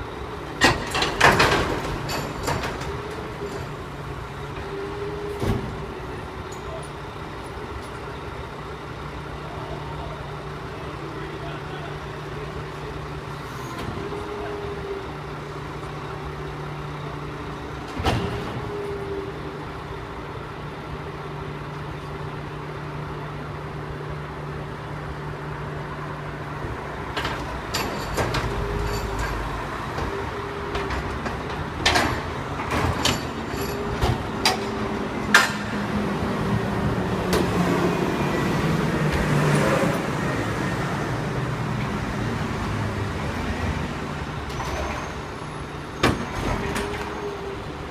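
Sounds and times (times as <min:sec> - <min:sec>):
garbage truck engine running: 0:00.0 - 0:47.9
metal bangs and clanks: 0:00.5 - 0:06.0, 0:27.1 - 0:35.8.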